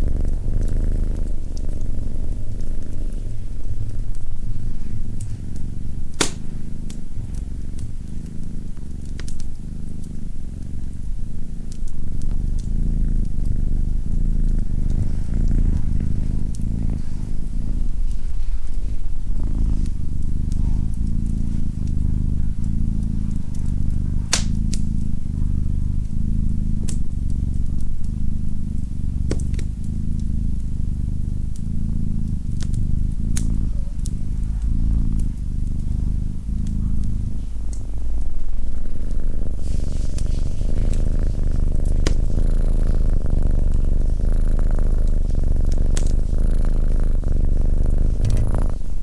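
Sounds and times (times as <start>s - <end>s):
wood fire crackling: 0.0s - 46.4s
cat purring: 0.0s - 49.0s
sharp clicks: 6.1s - 7.9s, 24.3s - 25.1s.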